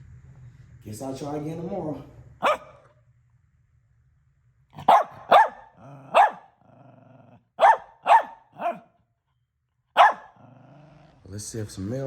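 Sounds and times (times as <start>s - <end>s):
dog barking: 2.4s - 2.9s, 4.8s - 6.6s, 7.5s - 9.0s, 10.0s - 10.6s.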